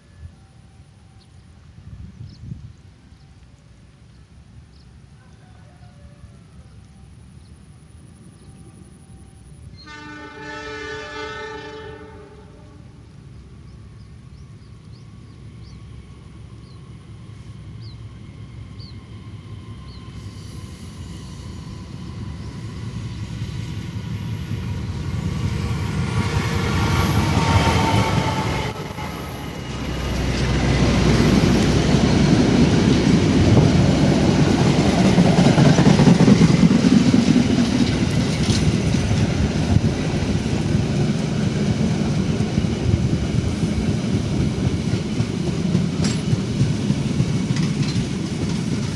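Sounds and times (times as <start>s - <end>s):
train rumble and wheel noise: 0.0s - 48.9s
train horn: 8.8s - 13.2s, 25.7s - 30.3s.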